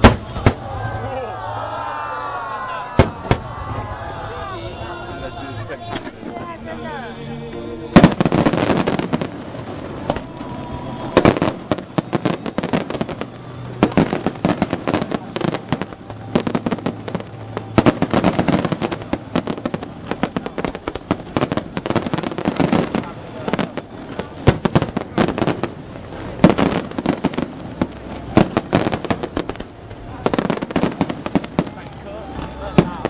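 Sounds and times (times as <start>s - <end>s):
loud firework bang: 0.0s - 1.0s, 3.0s - 3.9s
fireworks bursts and crackling: 0.0s - 1.4s, 2.7s - 33.0s.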